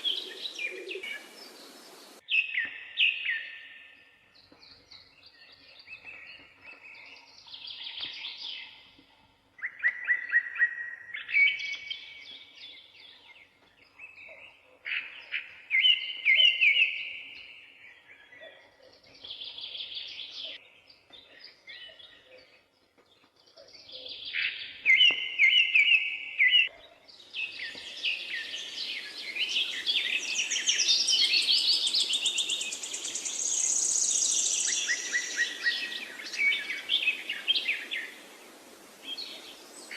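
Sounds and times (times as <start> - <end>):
steady hiss: 0.0 - 2.2, 32.5 - 39.9
songbirds singing: 0.0 - 39.9.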